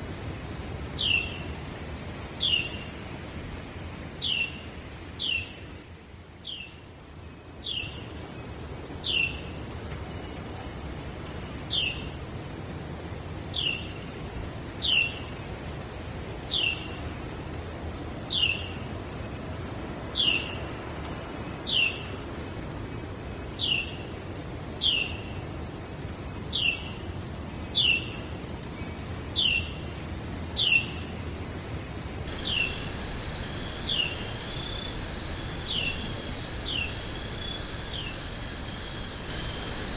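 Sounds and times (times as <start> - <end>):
low background rush: 28.3 - 39.9.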